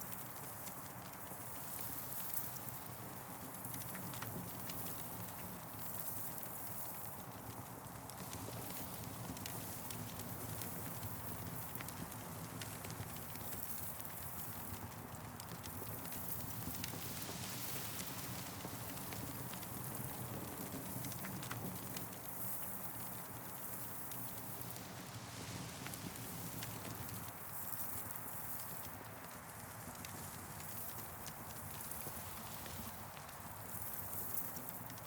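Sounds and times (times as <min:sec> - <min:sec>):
campfire crackling: 0:08.6 - 0:35.0.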